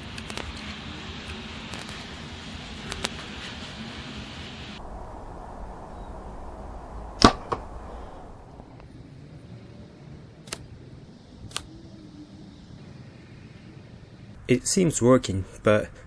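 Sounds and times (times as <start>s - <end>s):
arrow striking foam target: 7.2s - 7.7s.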